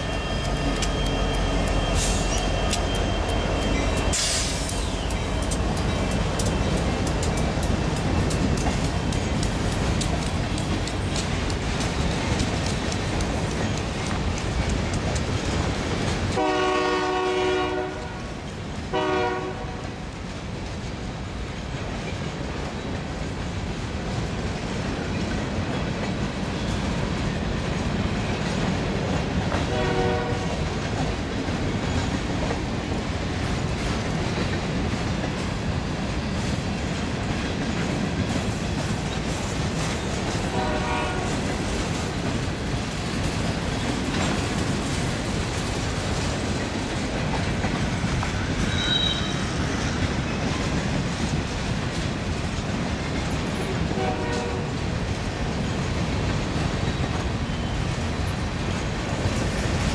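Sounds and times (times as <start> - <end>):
locomotive horn blasts: 0.0 - 4.1, 16.4 - 18.3, 18.9 - 19.8, 29.7 - 30.6, 40.5 - 41.4, 53.9 - 54.7
clicking at rail joints: 0.0 - 16.4, 21.5 - 59.9
train wheels rumbling on rail: 0.0 - 59.9.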